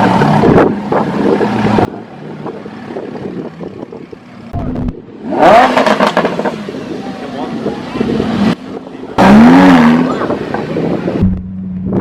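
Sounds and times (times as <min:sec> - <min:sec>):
car engine revving: 0:04.6 - 0:12.0.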